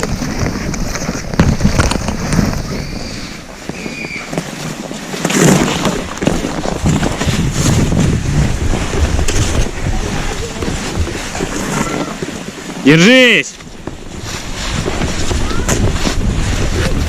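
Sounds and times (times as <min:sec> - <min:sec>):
skis swishing over snow: 0:00.0 - 0:17.0
wind buffeting microphone: 0:05.4 - 0:12.8, 0:13.6 - 0:17.0.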